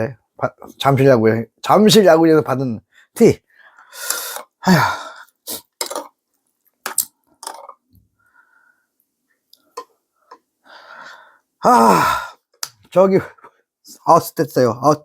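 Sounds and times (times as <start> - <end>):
man exhaling and grunting: 4.2 - 5.3, 11.6 - 12.4
small clicks and mouth noises: 5.6 - 8.1, 9.0 - 10.5, 12.5 - 12.9.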